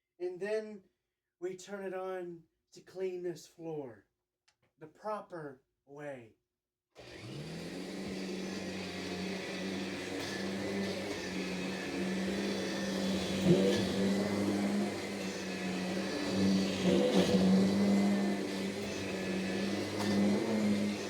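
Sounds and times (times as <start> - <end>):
vacuum cleaner running: 7.0 - 21.0.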